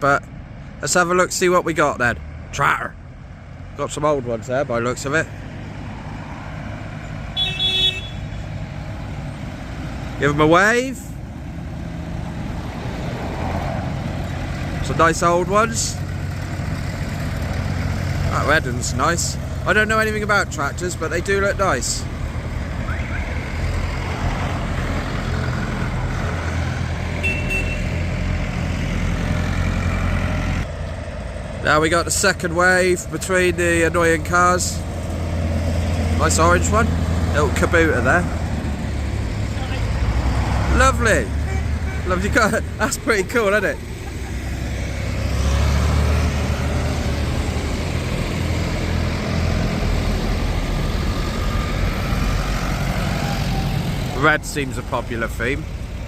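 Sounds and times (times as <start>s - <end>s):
old tractor engines driving past: 0.0s - 56.0s.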